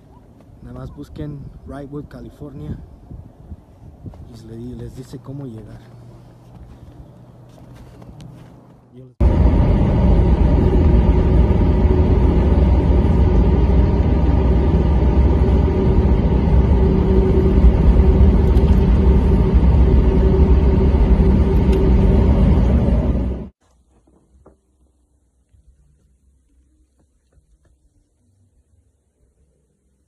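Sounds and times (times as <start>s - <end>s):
car engine and road noise: 5.1s - 23.6s
faint steady hum: 5.7s - 23.5s.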